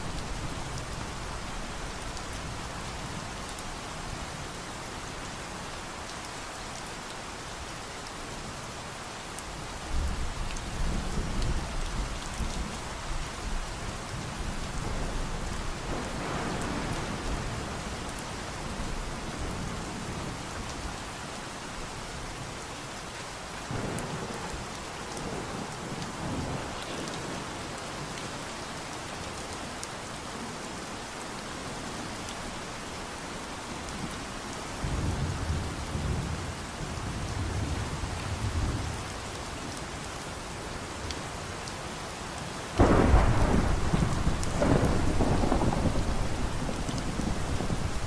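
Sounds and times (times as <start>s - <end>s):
steady rain falling: 0.0s - 48.0s
thunder rumbling: 14.9s - 18.0s, 42.8s - 48.0s.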